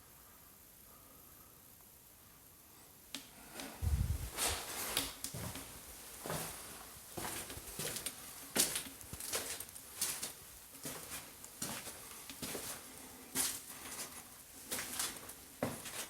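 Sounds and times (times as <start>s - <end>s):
footsteps on hard floor: 3.9s - 12.8s.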